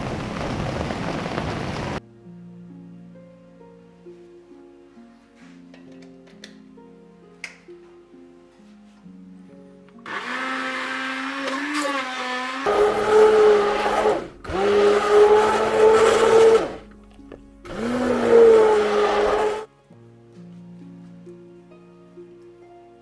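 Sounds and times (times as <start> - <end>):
blender motor whining: 10.1 - 16.9, 17.7 - 19.7.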